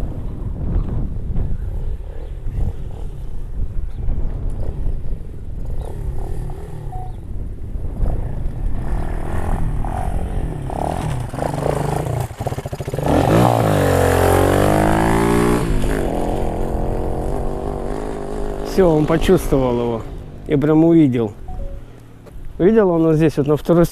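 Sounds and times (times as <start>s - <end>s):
motorbike engine revving: 4.4s - 22.4s.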